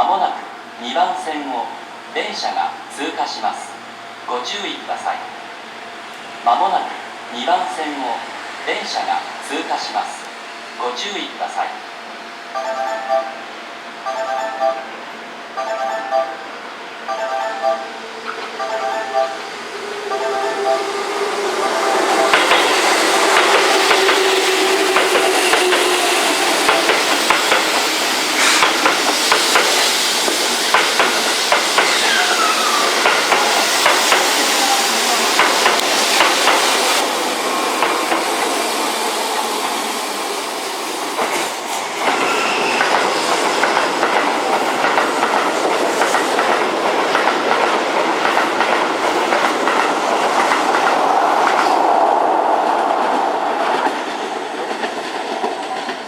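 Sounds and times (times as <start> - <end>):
train wheels clattering over rail joints: 22.0 - 34.5, 35.2 - 37.0, 41.2 - 51.8.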